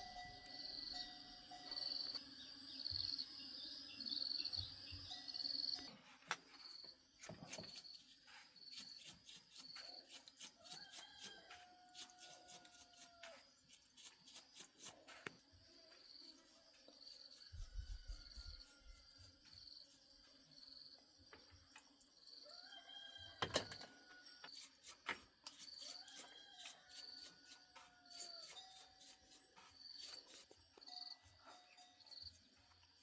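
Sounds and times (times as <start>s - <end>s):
insects chirping: 0.0s - 5.9s, 23.8s - 33.0s.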